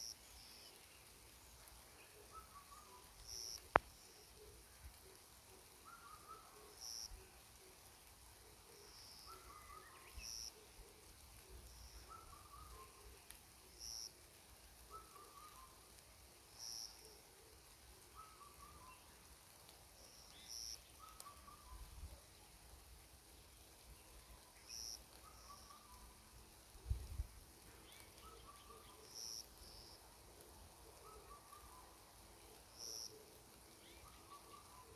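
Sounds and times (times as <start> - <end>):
soft bird chirps: 0.0 - 14.1, 20.0 - 22.0, 27.7 - 30.0, 30.9 - 34.9.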